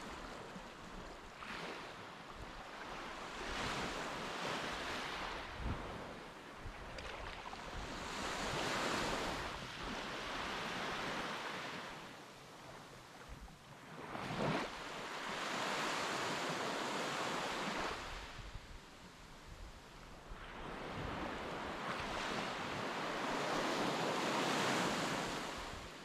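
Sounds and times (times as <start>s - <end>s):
wind on microphone: 0.0s - 11.3s
sea waves breaking on shore: 0.0s - 12.0s, 13.8s - 18.5s, 20.2s - 26.0s.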